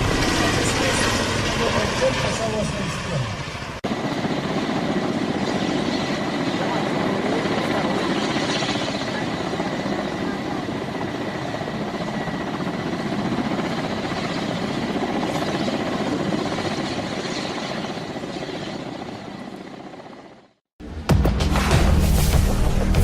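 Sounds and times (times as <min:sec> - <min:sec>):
helicopter flying overhead: 0:00.0 - 0:20.7
loud music with heavy boom: 0:20.8 - 0:23.0.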